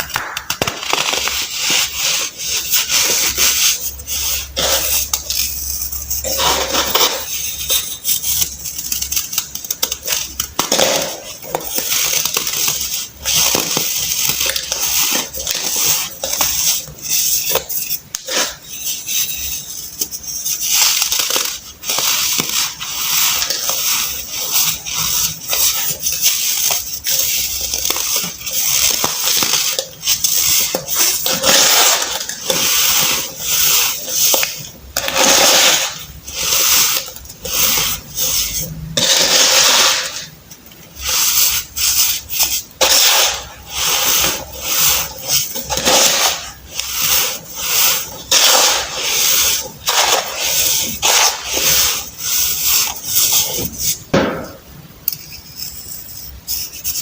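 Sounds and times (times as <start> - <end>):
baking soda crunching: 0.0 - 5.4, 20.9 - 40.4, 41.0 - 54.0.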